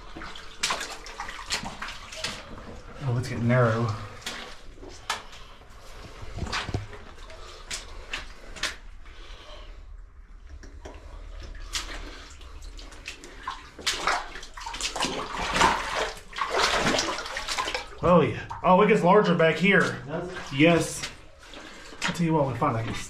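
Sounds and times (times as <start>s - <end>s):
splashing in water: 0.0s - 2.9s, 11.6s - 18.0s.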